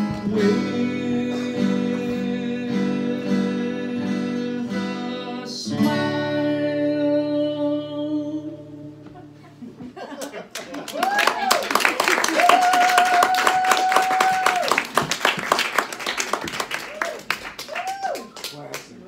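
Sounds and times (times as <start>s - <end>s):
acoustic guitar strumming: 0.0s - 9.8s.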